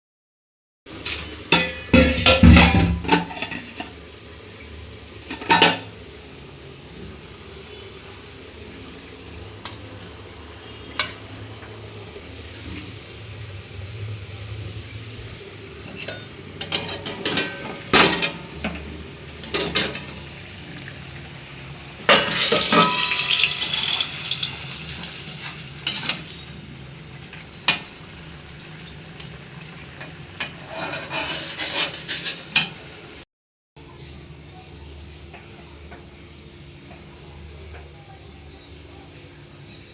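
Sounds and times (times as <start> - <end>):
loud sizzle: 0.9 - 33.2
utensil scraping and clinking on a pan: 1.0 - 4.0, 22.1 - 23.5, 30.4 - 32.8.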